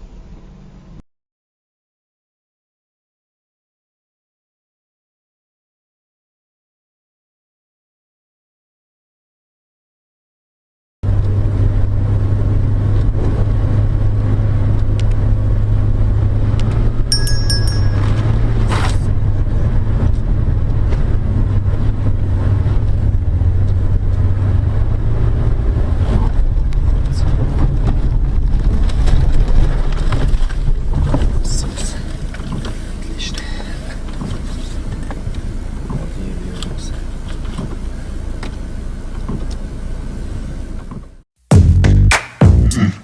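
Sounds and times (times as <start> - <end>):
car driving rumble: 11.0 - 43.0
high ringing tone: 17.1 - 19.0.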